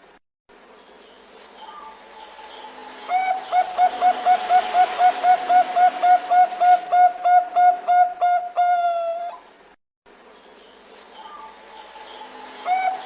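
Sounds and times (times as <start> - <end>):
dove calling: 1.6 - 9.5, 11.2 - 13.0.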